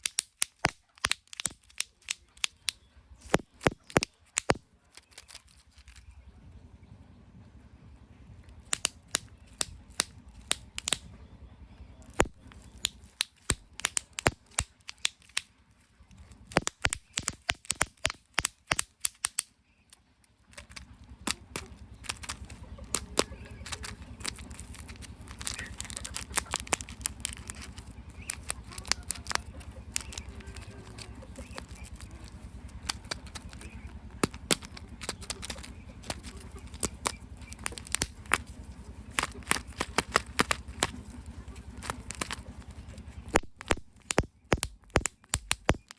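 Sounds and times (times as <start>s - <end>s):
plastic eggs and wrappers crackling: 0.0s - 6.2s, 8.6s - 11.0s, 12.1s - 45.9s
steady low hum: 0.0s - 45.9s.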